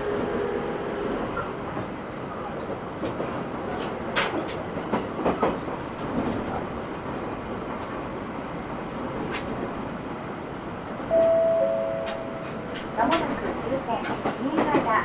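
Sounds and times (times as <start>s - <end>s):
electric train cabin rumble: 8.7s - 15.0s
two-note tone: 11.1s - 13.0s.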